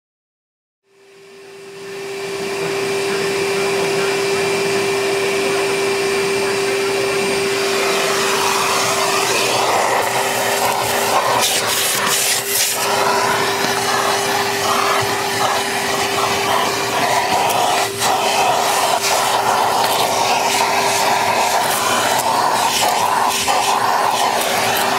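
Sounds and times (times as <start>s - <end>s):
vacuum blower motor whining: 0.9s - 24.9s
rushing airflow: 7.2s - 24.9s.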